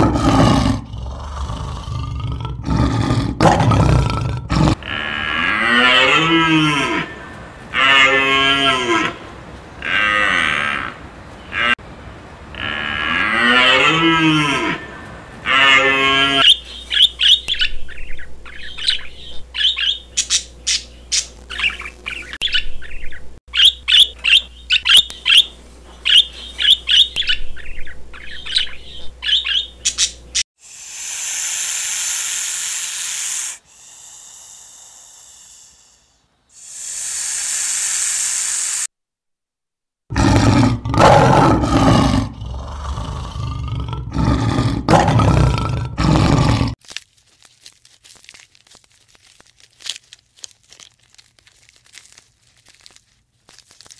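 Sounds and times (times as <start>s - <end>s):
lion roaring: 0.0s - 7.2s, 40.1s - 46.8s
hiss: 30.6s - 38.9s.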